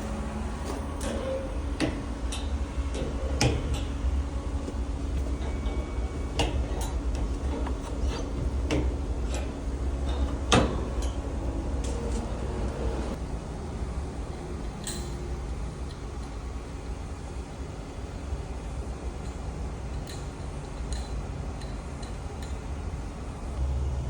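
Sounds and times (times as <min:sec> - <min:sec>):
steady low rumble: 0:00.0 - 0:24.0
metal tools clicking and clinking: 0:00.6 - 0:04.2, 0:05.1 - 0:11.2, 0:14.8 - 0:15.2.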